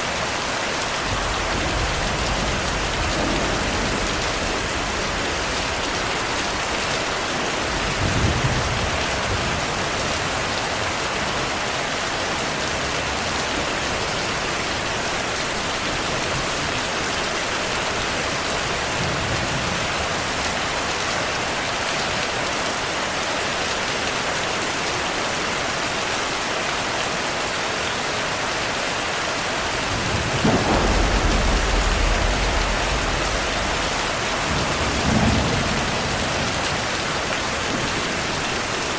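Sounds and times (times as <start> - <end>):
heavy rainfall: 0.0 - 38.9
thunder rumbling: 1.0 - 10.0, 29.6 - 38.9.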